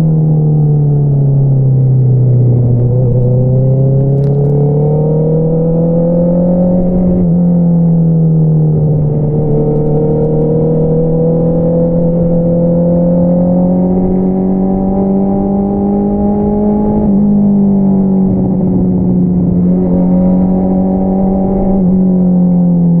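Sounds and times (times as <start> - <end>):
motorcycle engine revving: 2.3 - 7.4, 8.7 - 22.2.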